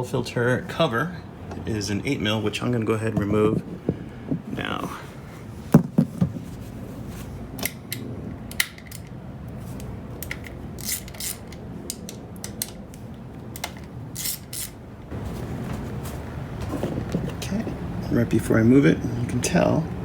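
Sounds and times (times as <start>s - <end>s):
ratchet clicking: 10.2s - 13.0s, 13.6s - 14.8s.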